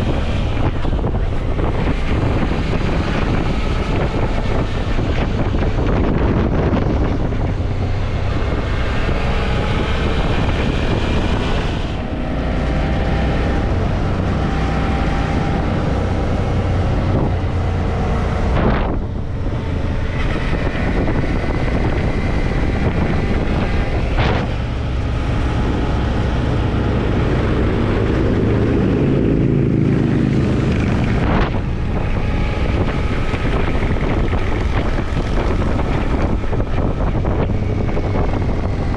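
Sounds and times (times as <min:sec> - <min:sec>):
wind noise on microphone: 0:00.0 - 0:38.9
motorcycle engine running: 0:15.3 - 0:38.9.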